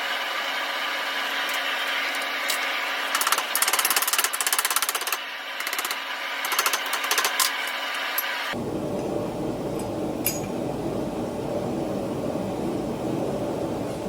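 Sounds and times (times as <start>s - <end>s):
propane forge burner roaring: 0.0s - 14.0s
rapid mechanical rattle: 0.4s - 8.4s.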